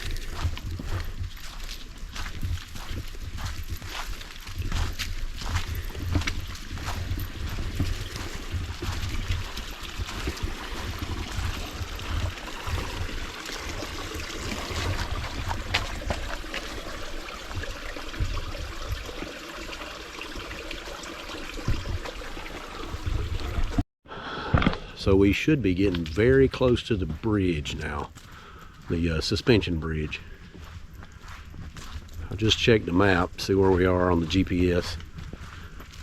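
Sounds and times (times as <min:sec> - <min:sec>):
creek trickling: 0:00.0 - 0:23.8.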